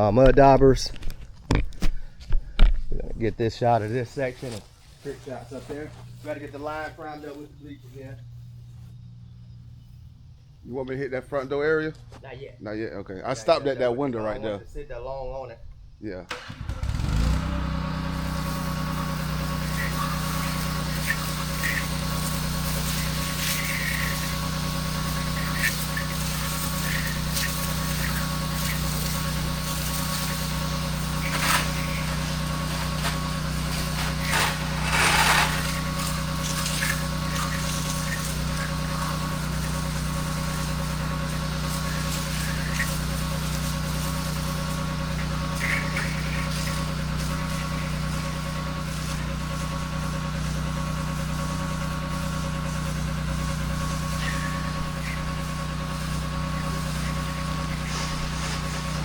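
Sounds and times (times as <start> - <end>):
pressure washer engine running: 3.8 - 10.0, 16.3 - 59.0.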